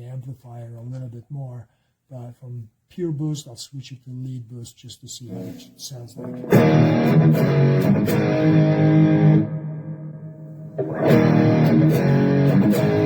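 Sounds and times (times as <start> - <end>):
overdriven electric guitar chords: 5.3 - 13.0.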